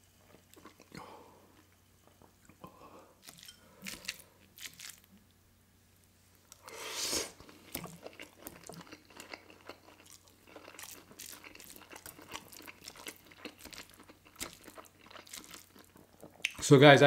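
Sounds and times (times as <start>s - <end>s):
wet chewing and mouth smacking: 0.2s - 5.3s, 7.3s - 16.6s
noodle slurp: 6.6s - 7.6s.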